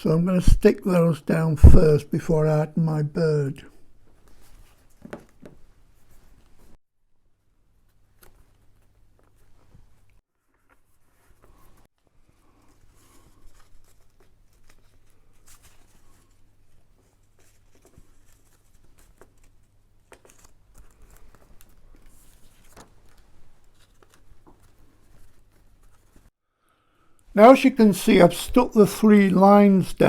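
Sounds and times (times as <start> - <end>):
paper rustling and crinkling: 7.9 - 26.3.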